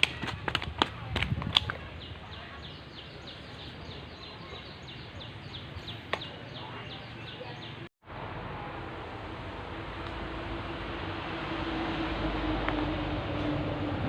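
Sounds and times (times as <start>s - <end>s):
outdoor background noise: 0.0s - 14.0s
bird chirping: 1.8s - 7.9s.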